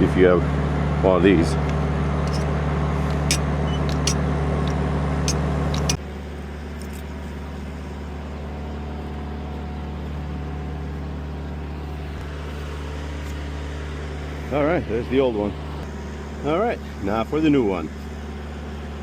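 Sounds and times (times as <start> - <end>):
metal tools clinking: 2.3 - 4.2, 5.3 - 6.0.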